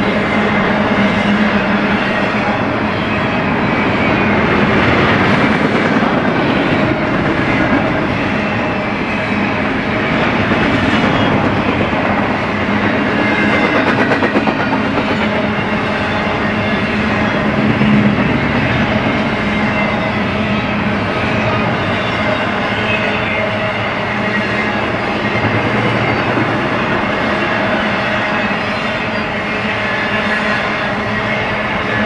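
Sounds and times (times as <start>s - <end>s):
steel wheels rumbling on rail: 0.0s - 32.0s.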